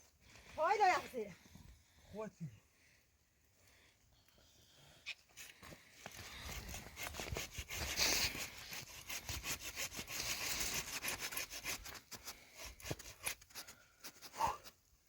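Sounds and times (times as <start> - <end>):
scraping and rubbing on wood: 6.0 - 14.4.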